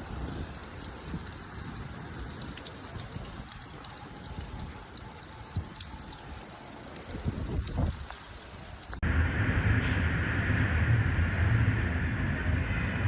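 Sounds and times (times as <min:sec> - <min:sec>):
raindrops ticking close by: 0:00.0 - 0:09.0
heavy rain falling: 0:00.0 - 0:13.0
wind buffeting microphone: 0:05.4 - 0:13.0.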